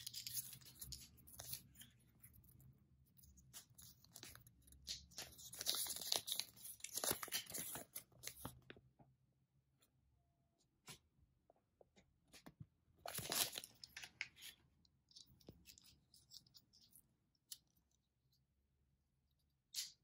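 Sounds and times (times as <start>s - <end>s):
wrapper tearing and crinkling: 5.1s - 8.4s, 13.1s - 14.2s.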